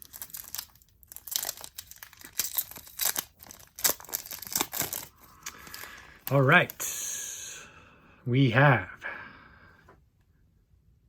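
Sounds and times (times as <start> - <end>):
plastic wrapper crinkling and tearing: 0.0 - 6.8.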